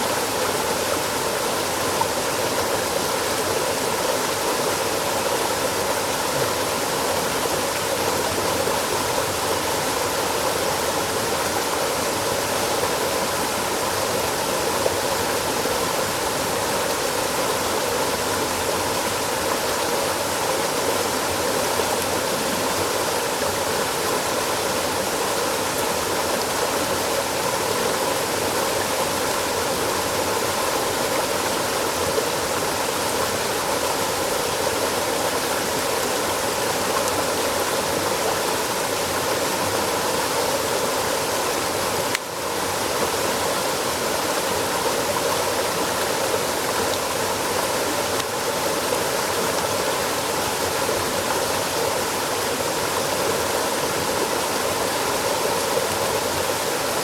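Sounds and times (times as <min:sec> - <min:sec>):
flowing water: 0:00.0 - 0:57.0.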